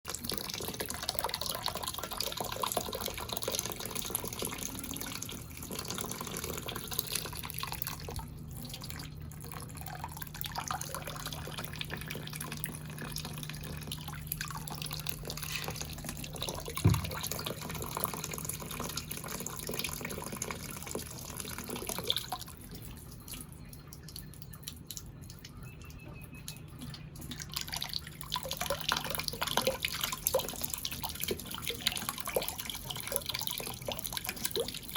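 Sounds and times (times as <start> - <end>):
faint low hum: 0.1 - 34.9
water dripping and splashing: 0.1 - 34.9
thump: 16.8 - 17.2.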